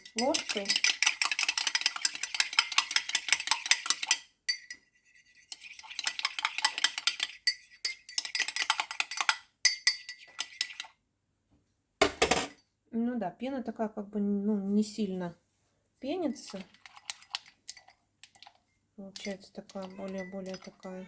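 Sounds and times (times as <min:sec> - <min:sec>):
spoon clinking in glass mug: 0:00.0 - 0:04.8, 0:05.5 - 0:10.9, 0:16.4 - 0:18.6, 0:19.2 - 0:21.0.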